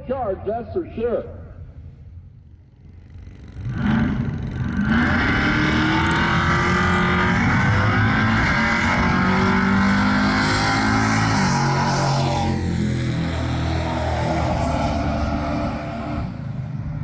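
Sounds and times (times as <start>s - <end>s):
vee eight engine revving hard: 3.3s - 16.5s.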